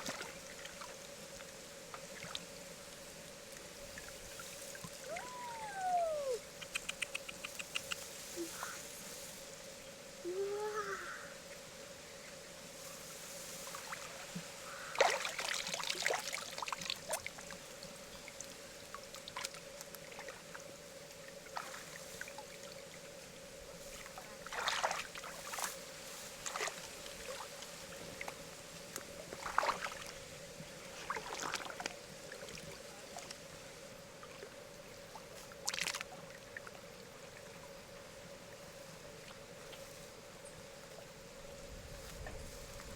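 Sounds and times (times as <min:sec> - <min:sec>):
water splashing and sloshing: 0:00.0 - 0:02.5, 0:13.4 - 0:17.7, 0:21.2 - 0:22.8, 0:23.9 - 0:33.5, 0:34.2 - 0:37.5
faint steady tone: 0:00.1 - 0:15.1.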